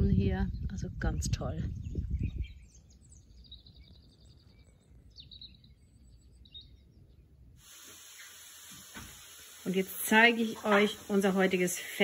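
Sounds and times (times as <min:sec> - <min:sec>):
faint birdsong: 0:00.4 - 0:12.0
steady hiss: 0:07.6 - 0:12.0.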